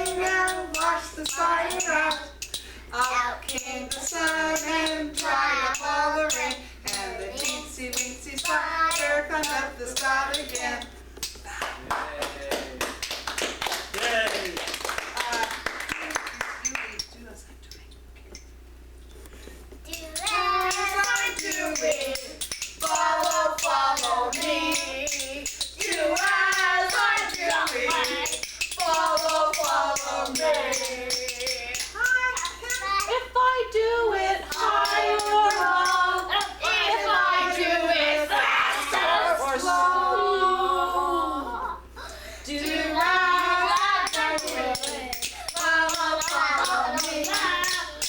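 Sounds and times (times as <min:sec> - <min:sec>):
children singing: 0:20.2 - 0:41.8, 0:42.5 - 0:48.0.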